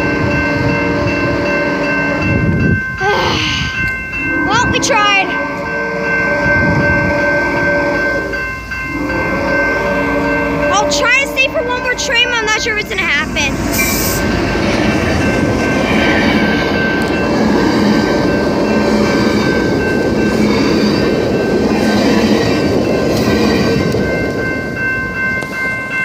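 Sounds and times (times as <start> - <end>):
thin high tone: 3.0 - 14.4.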